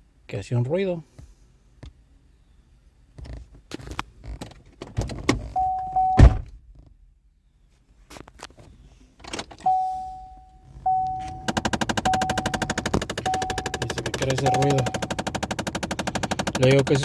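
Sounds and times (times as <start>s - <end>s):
knocks and thunks around car: 4.4s - 7.0s, 10.9s - 17.0s
steady electronic tone: 9.7s - 15.6s.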